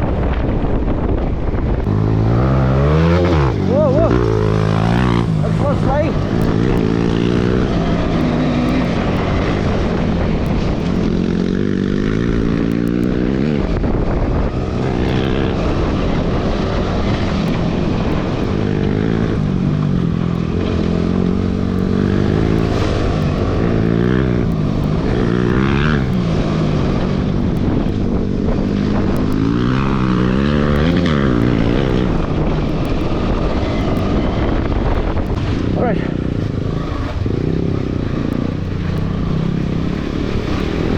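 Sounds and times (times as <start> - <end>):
motorcycle engine revving: 1.6 - 40.9.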